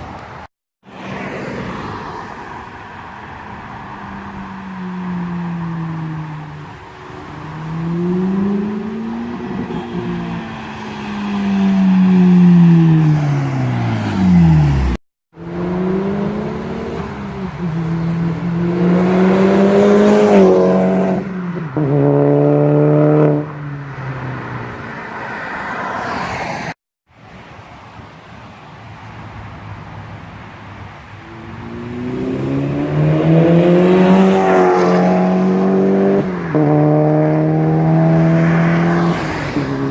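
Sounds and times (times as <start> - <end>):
car engine accelerating hard: 31.5 - 39.9.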